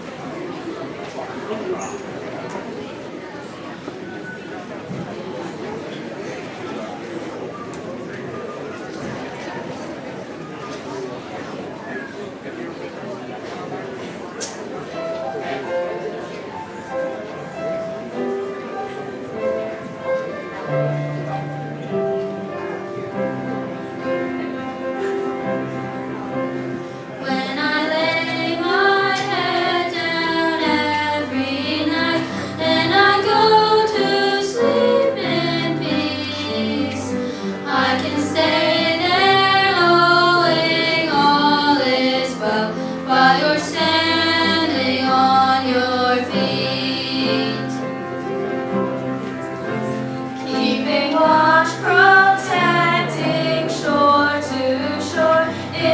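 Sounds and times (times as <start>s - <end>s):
children singing: 27.2s - 48.0s, 50.5s - 55.9s.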